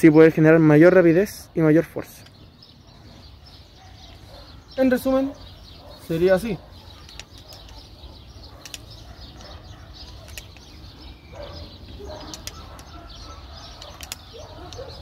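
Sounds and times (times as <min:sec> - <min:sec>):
birds calling: 0:00.0 - 0:15.0
sharp bird chirps: 0:01.0 - 0:15.0.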